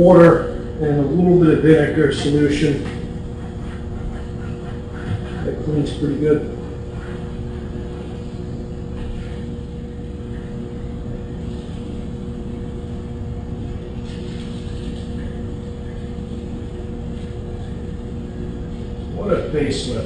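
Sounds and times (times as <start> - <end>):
mechanical hum with tones: 0.0 - 20.0.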